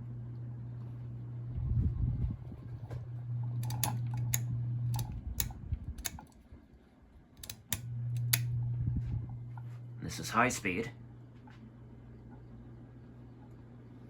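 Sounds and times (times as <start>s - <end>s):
ceiling fan motor humming: 0.0s - 14.0s
pull-chain switch clicks: 3.6s - 6.4s, 7.4s - 8.5s.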